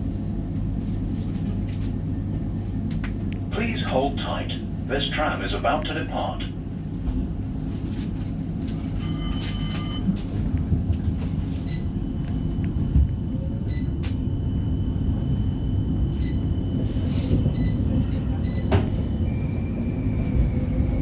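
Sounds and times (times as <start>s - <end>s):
tram wheels rumbling on rail: 0.0s - 21.0s
short beep: 9.0s - 10.1s.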